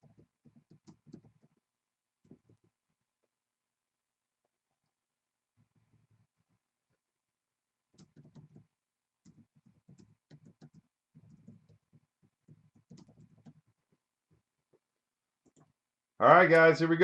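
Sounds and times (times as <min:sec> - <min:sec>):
keyboard typing and mouse clicks: 0:00.0 - 0:02.8, 0:07.9 - 0:15.8.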